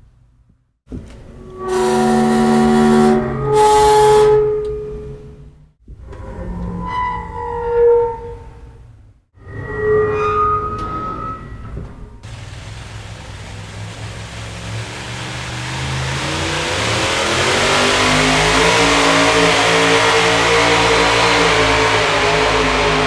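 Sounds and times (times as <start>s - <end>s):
motor engine revving: 1.0s - 4.7s, 12.2s - 23.0s
short tonal sound: 1.2s - 5.7s.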